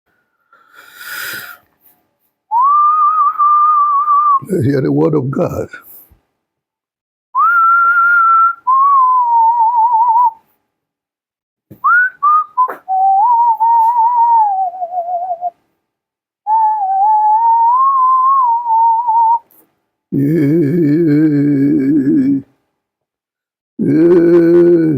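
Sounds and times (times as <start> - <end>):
person whistling a slow melody: 2.5 - 4.4, 7.4 - 10.4, 11.8 - 15.6, 16.5 - 19.5.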